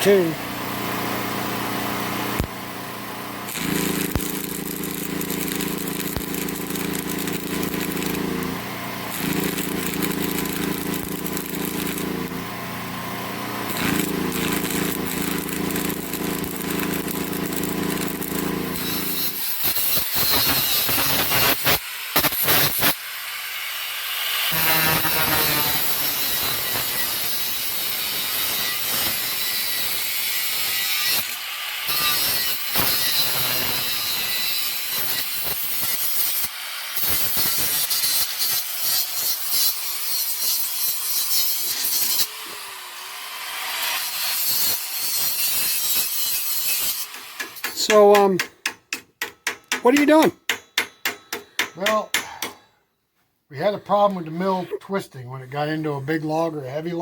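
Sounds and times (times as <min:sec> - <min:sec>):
power tool motor hum: 0:00.6 - 0:23.0, 0:24.5 - 0:39.8
harsh high-pitched grinding: 0:03.4 - 0:23.0, 0:24.2 - 0:48.6.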